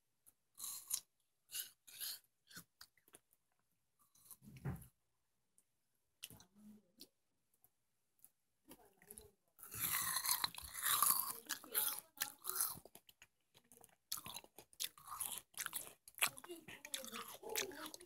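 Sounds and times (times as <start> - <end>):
watermelon bite and chewing: 0.5 - 3.3, 9.6 - 18.0.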